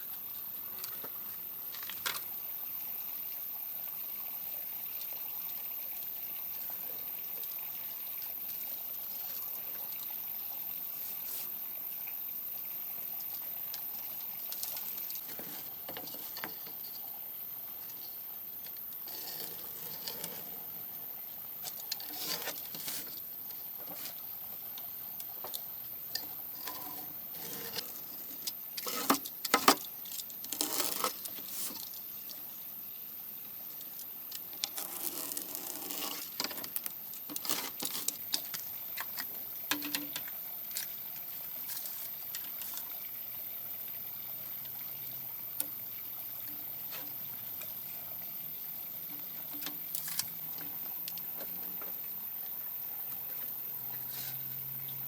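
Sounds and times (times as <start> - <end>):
faint steady hiss: 0.0 - 55.0.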